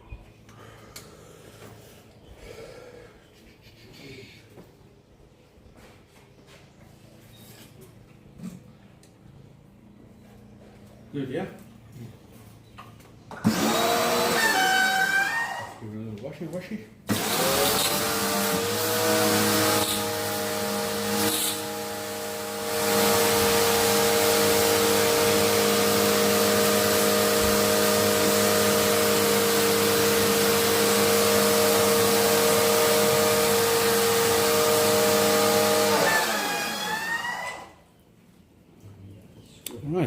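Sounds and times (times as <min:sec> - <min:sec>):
pressure washer motor whining: 0:13.3 - 0:15.8, 0:17.1 - 0:37.8.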